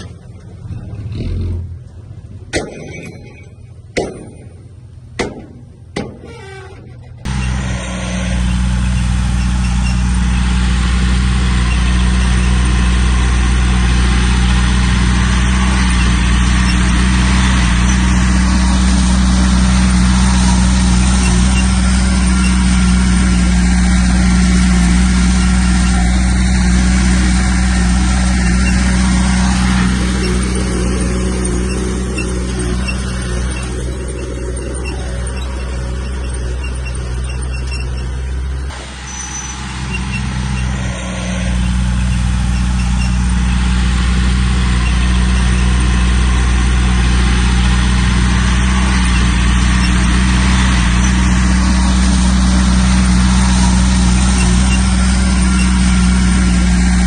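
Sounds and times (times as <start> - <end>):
heavy machinery diesel engine: 0.0 - 57.0
sharp knocks: 2.5 - 7.1.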